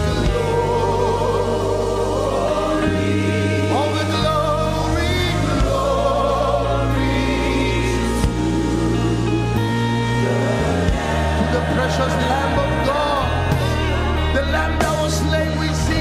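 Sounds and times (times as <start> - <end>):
keyboard and bass chords: 0.0 - 16.0
voices singing worship song: 0.0 - 16.0.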